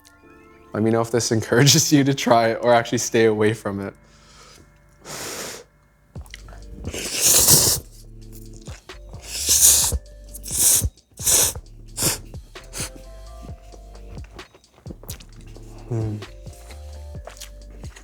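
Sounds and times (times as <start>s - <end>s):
quiet background music: 0.0s - 18.0s
chewing: 6.2s - 7.8s, 8.4s - 18.0s
noodle slurping: 6.3s - 13.5s, 14.2s - 18.0s.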